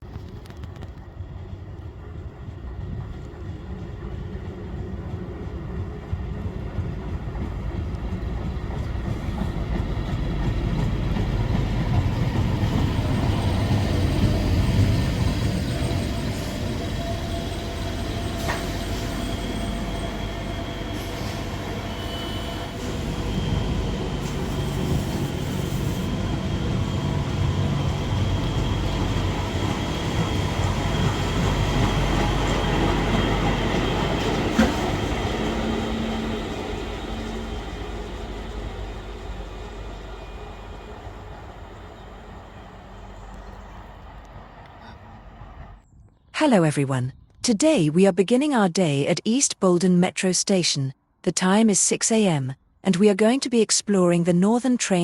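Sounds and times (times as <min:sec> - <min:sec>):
train running on rails: 0:00.0 - 0:46.0.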